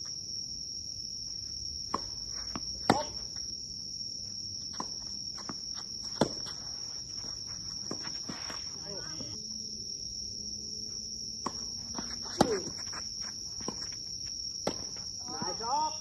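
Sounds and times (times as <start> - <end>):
insects droning: 0.0 - 16.0
tennis ball struck by rackets: 1.8 - 3.5, 4.7 - 9.4, 11.4 - 15.7.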